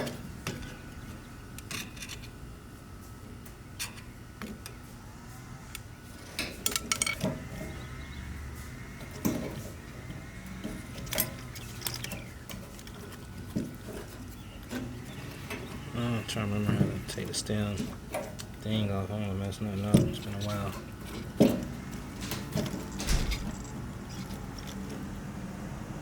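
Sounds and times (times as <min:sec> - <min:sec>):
metal parts rubbing: 0:04.7 - 0:18.5, 0:20.1 - 0:25.0
metal parts clicking and clinking: 0:06.4 - 0:07.8, 0:10.5 - 0:15.9, 0:19.9 - 0:25.0.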